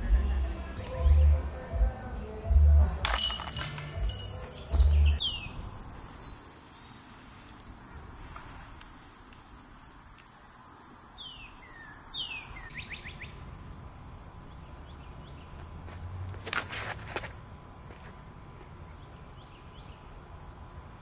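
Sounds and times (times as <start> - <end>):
songbird whistling: 4.8 - 5.6, 11.1 - 13.4
footstep scuff: 15.5 - 18.8.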